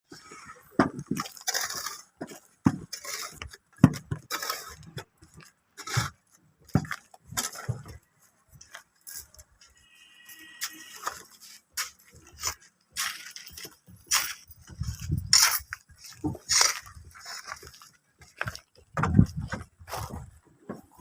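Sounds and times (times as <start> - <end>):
high squeak: 9.7 - 11.2.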